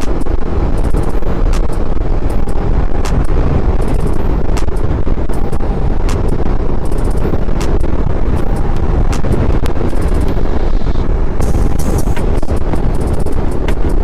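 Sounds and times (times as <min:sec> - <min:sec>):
motorcycle engine and road noise: 0:00.0 - 0:14.0
sharp crackles from wind gusts: 0:00.0 - 0:14.0
wind rushing over microphone: 0:00.0 - 0:14.0.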